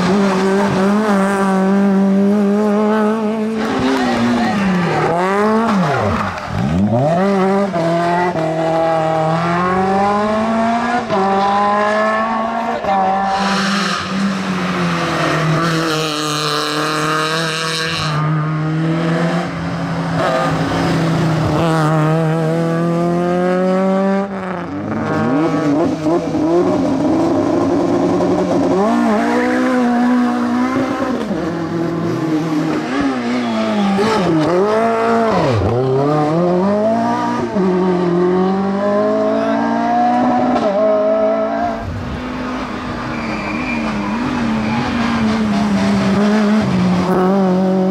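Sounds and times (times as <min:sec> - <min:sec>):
rally car engines revving: 0:00.0 - 0:47.9
tyre squeal: 0:32.9 - 0:34.6, 0:42.9 - 0:45.8.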